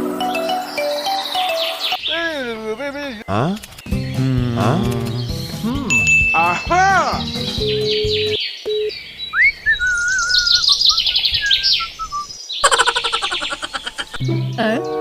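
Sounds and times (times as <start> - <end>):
chirping: 0.2 - 5.8, 6.4 - 15.0.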